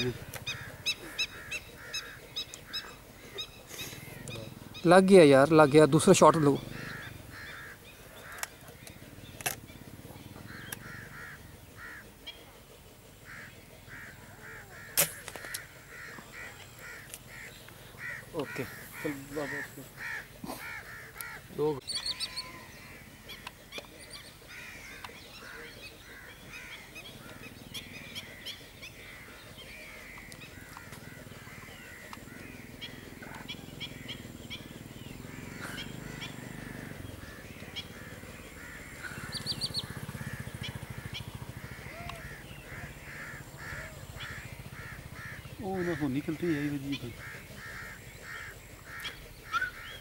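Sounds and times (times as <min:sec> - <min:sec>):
birds calling: 0:00.0 - 0:50.0
sharp ticks: 0:31.6 - 0:33.5.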